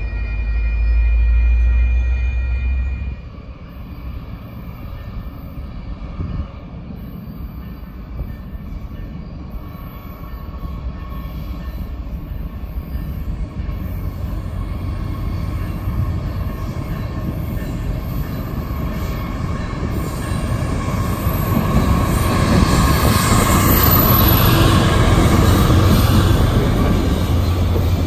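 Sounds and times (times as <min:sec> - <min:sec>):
crossing bell ringing: 0:00.0 - 0:05.6, 0:09.9 - 0:22.7
diesel locomotive rumble: 0:00.0 - 0:28.0
distant train on steel trestle: 0:00.0 - 0:28.0.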